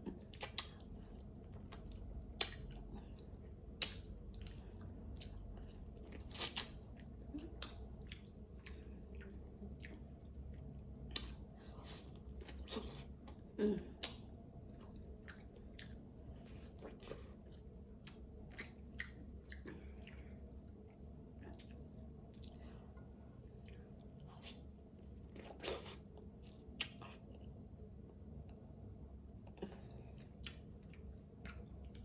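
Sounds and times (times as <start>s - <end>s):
person chewing: 0.1s - 22.7s.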